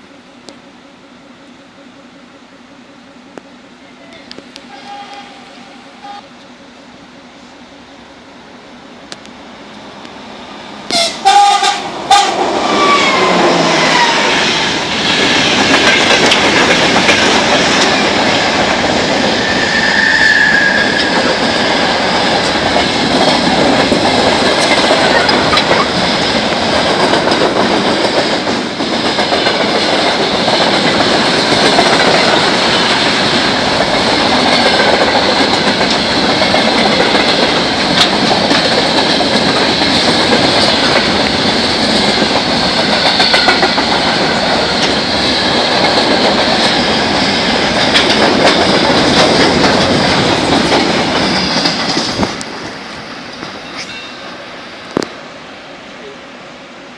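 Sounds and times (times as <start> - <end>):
diesel locomotive passing: 0.0 - 56.9
train horn blasts: 3.8 - 6.4, 10.9 - 14.6
wheels clacking on rail joints: 10.9 - 54.3.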